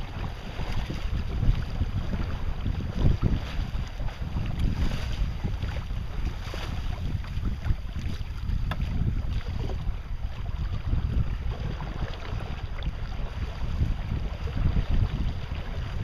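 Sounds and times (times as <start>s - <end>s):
water washing against hull: 0.0s - 16.0s
wind buffeting microphone: 0.0s - 16.0s.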